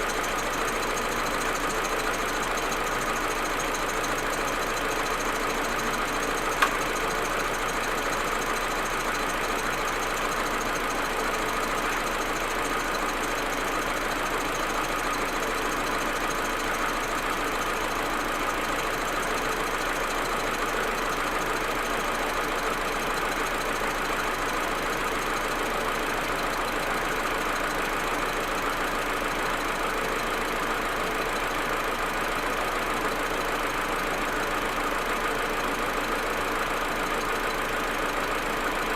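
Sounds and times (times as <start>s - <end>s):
car engine idling roughly: 0.0s - 38.9s
sharp click: 6.6s - 7.0s.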